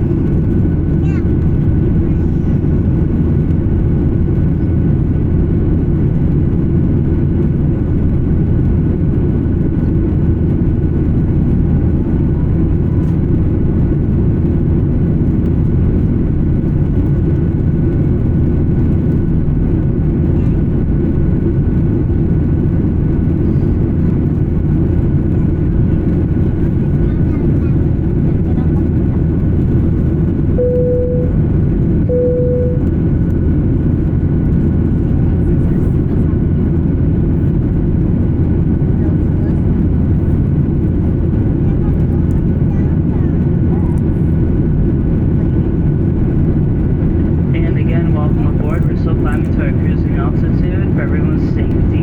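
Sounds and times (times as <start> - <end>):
jet cabin engine rumble: 0.0 - 52.0
faint steady whine: 29.9 - 34.0, 47.3 - 52.0.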